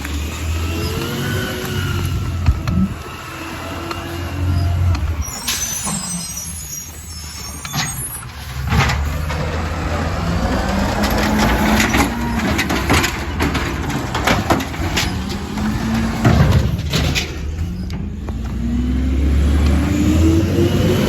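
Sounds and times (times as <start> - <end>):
sharp clanks and knocks: 7.6 - 18.6
truck engine running: 8.2 - 20.5.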